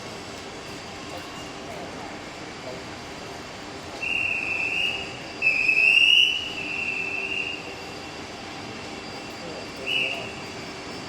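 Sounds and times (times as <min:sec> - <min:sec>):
low train rumble: 0:00.0 - 0:11.0
high-pitched train brake squeal: 0:00.6 - 0:01.8, 0:03.9 - 0:11.0.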